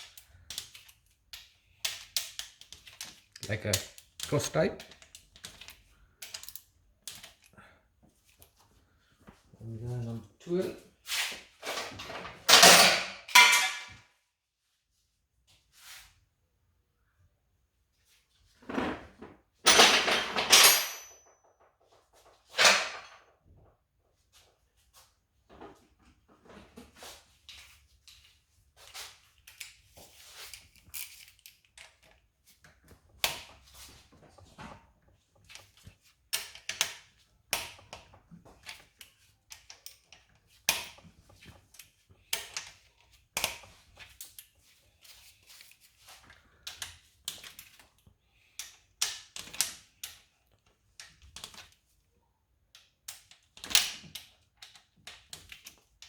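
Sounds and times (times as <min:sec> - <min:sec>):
metallic clicks of hand tools: 0:00.0 - 0:07.5.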